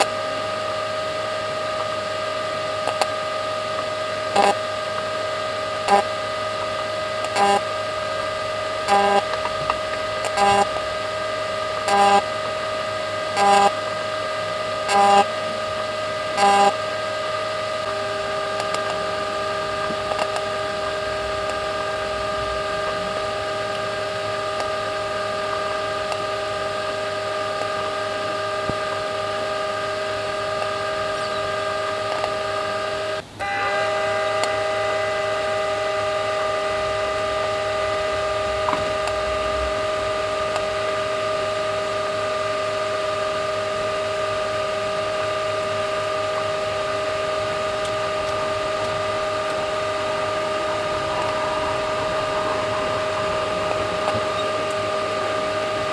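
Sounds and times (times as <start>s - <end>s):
microwave oven humming: 0.0s - 55.9s
short loud buzzes: 0.0s - 55.9s.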